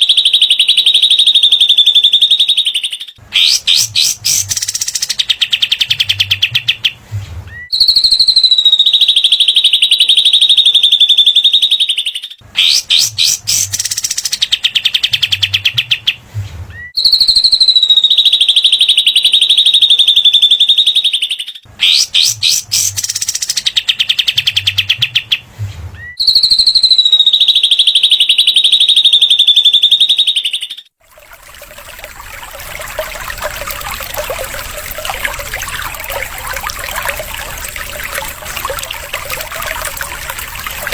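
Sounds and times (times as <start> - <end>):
steady trickling sound: 3.2 - 5.3, 12.8 - 14.5, 22.3 - 23.6, 31.0 - 40.9
songbird chattering trill: 3.4 - 6.0, 12.6 - 14.8, 21.8 - 24.5.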